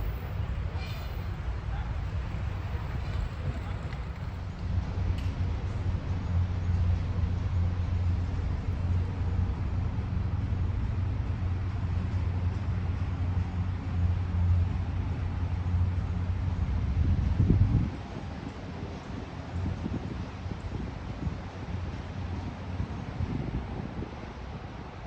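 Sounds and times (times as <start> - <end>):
large engine droning: 0.0 - 25.0.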